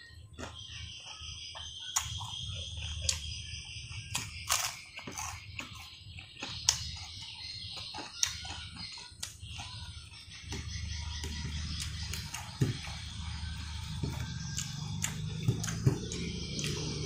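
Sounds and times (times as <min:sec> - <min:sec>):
crunching fried batter: 0:00.0 - 0:17.0
wet chewing noises: 0:04.1 - 0:09.8, 0:11.2 - 0:17.0.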